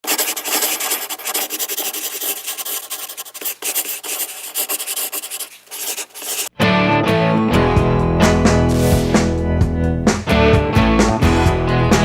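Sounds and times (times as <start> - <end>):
scraping rasping noise: 0.0 - 6.5
music with guitar: 6.6 - 12.0.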